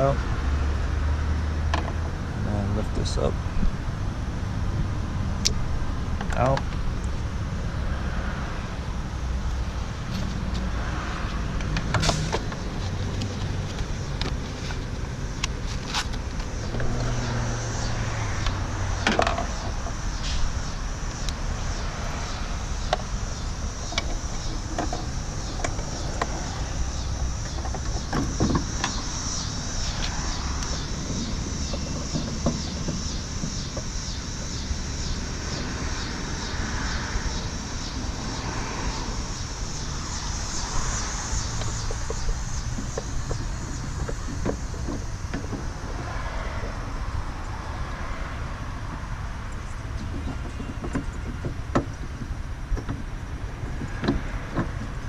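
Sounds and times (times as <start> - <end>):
outdoor background rumble: 0.0 - 55.0.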